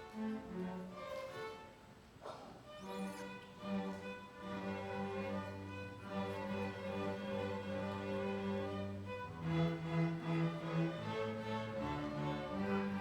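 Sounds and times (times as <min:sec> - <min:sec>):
violin melody: 0:00.0 - 0:01.8, 0:02.7 - 0:13.0.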